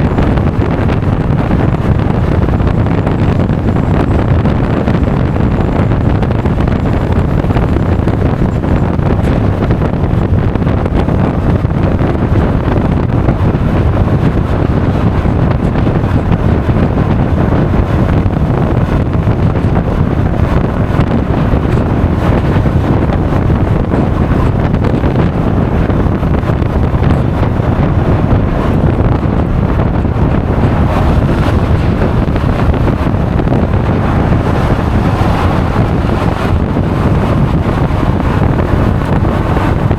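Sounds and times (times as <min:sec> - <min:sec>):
road noise: 0:00.0 - 0:39.9
wind buffeting microphone: 0:00.0 - 0:39.9
scooter engine: 0:29.4 - 0:39.9.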